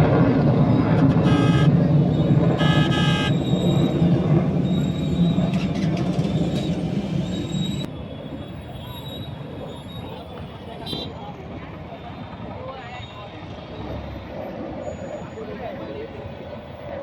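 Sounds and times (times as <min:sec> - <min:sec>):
low engine rumble: 0:00.0 - 0:07.9
horn toot: 0:00.8 - 0:05.7.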